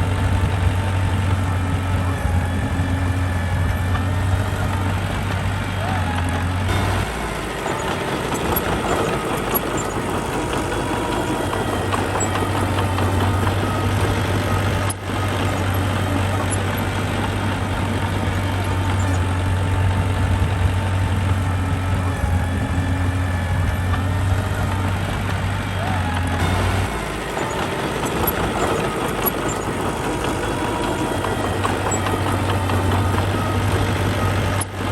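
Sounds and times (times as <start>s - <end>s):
heavy machine engine droning: 0.0s - 34.9s.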